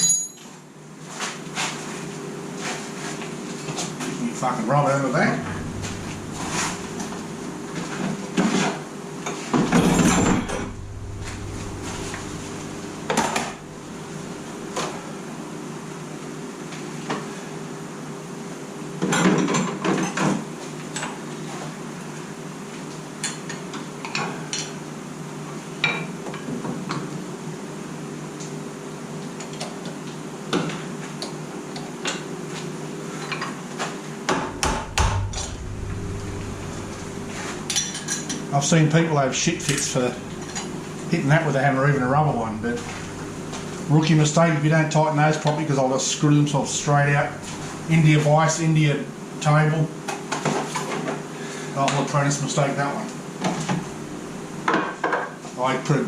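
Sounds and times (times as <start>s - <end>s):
machine hum: 4.8s - 8.5s, 9.5s - 16.0s, 34.3s - 49.4s, 53.5s - 54.7s
metal rattling clatter: 9.6s - 14.8s.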